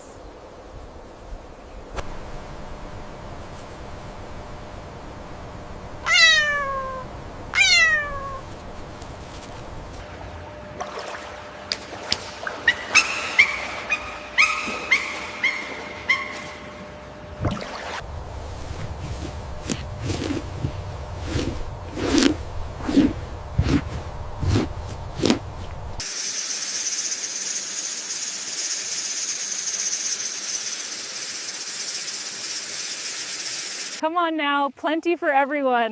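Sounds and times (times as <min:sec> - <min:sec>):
steady high-pitched hiss: 0:00.0 - 0:10.6, 0:18.0 - 0:35.8
drawn-out falling animal calls: 0:06.0 - 0:08.6, 0:12.5 - 0:17.2.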